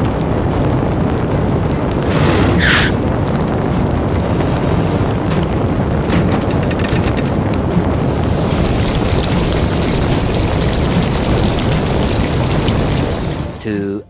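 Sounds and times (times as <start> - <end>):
deep rumble with crackling: 0.0 - 6.6, 7.4 - 13.6
steady hiss: 4.0 - 5.4, 8.0 - 13.7.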